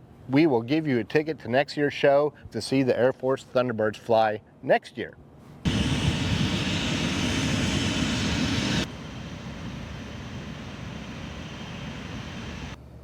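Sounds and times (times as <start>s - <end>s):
aircraft engine roar: 5.7s - 12.8s.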